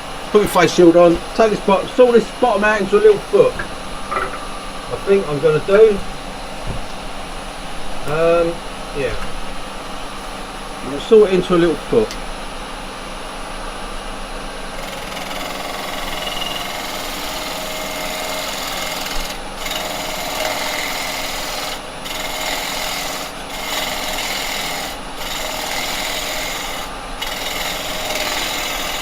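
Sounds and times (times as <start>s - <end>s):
lathe motor hum: 13.8s - 29.0s
chisel scraping wood on lathe: 14.8s - 29.0s.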